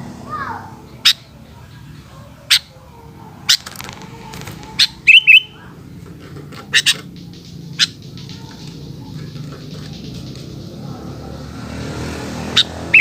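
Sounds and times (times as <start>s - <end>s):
faint rapid bird chatter: 0.8s - 11.4s, 12.4s - 13.0s
bulbul chirping: 4.6s - 5.6s, 6.7s - 10.8s, 12.5s - 13.0s
bird whistled notes: 4.8s - 5.6s, 12.6s - 13.0s.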